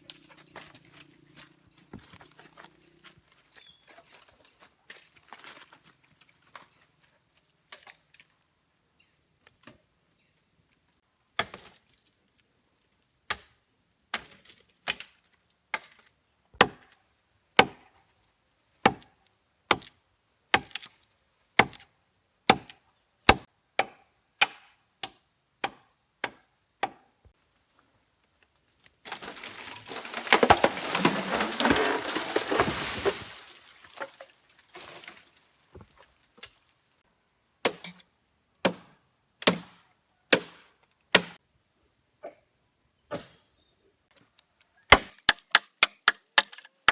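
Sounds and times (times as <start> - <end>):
branches crackling and rustling: 0.0 - 8.5, 27.7 - 37.0
axe chopping wood: 16.6 - 16.9, 17.6 - 17.8, 18.8 - 19.1, 20.5 - 20.9, 21.6 - 21.9, 22.5 - 27.0, 29.2 - 33.2, 37.6 - 38.0, 38.6 - 41.4, 44.9 - 46.9.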